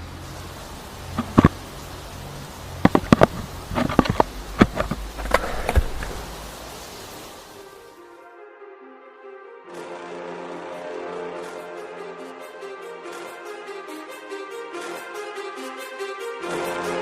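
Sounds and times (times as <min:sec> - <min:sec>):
engine pops and misfires: 0:01.1 - 0:01.7, 0:02.8 - 0:06.4.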